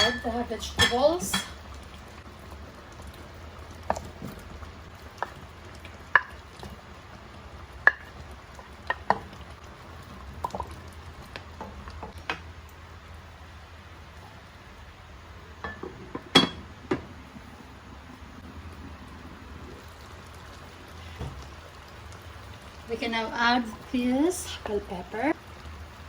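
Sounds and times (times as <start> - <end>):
utensils knocking against a pot: 0.0 - 1.6, 15.6 - 17.0
stew sizzling: 0.0 - 26.0.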